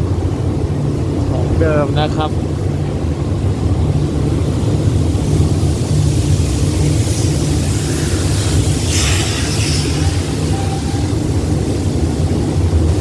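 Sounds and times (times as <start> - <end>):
train rumbling over bridge: 0.0 - 13.0
brief rushing hiss: 6.6 - 12.0.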